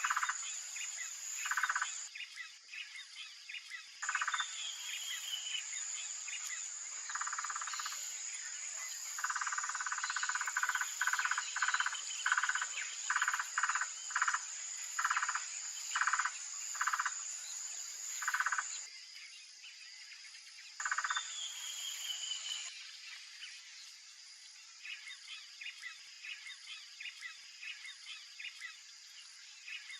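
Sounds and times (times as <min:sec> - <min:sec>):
high-pitched insect drone: 0:00.0 - 0:02.1, 0:04.0 - 0:18.8.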